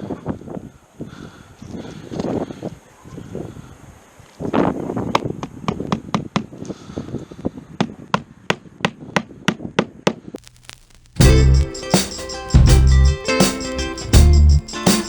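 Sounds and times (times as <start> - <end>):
music with heavy beat: 11.2 - 15.0.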